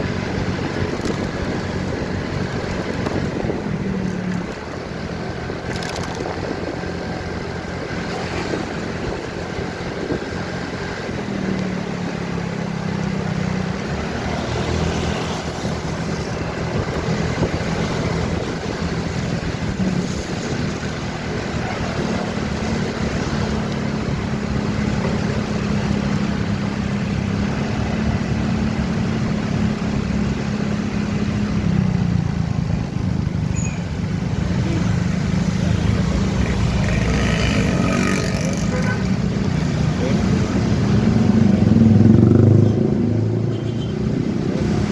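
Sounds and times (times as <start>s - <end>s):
motorcycle engine revving: 0.0s - 30.6s, 34.2s - 44.9s
wind and road noise: 0.0s - 44.9s.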